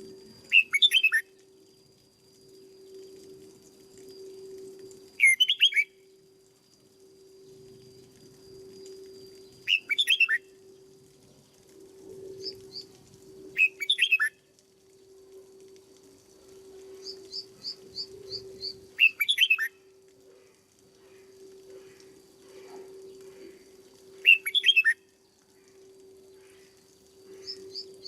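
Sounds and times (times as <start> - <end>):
steady low hum: 0.0 - 5.2, 5.8 - 28.0
bird singing chirpy phrases: 0.5 - 1.2, 5.2 - 5.9, 9.7 - 10.4, 13.6 - 14.3, 17.0 - 19.7, 24.2 - 25.0.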